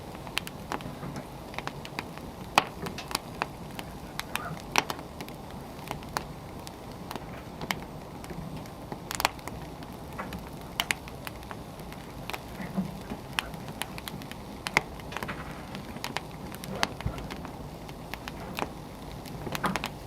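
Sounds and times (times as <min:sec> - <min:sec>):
fire low rumble: 0:00.0 - 0:20.0
wood fire crackling and popping: 0:00.0 - 0:20.0.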